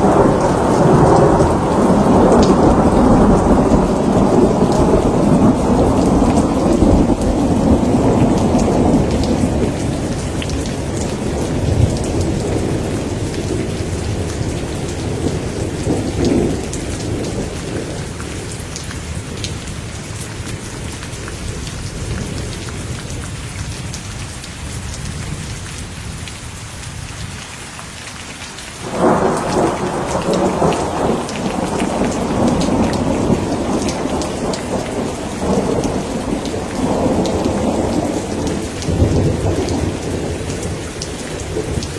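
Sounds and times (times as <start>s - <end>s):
rolling thunder: 0.0s - 18.6s, 28.8s - 41.9s
steady rain: 0.0s - 41.9s
raindrop ticks: 28.1s - 39.8s.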